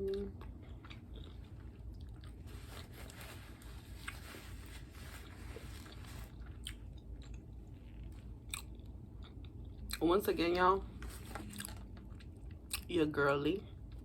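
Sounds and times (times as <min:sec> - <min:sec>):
chewing food close up: 0:00.0 - 0:02.5, 0:05.8 - 0:10.1.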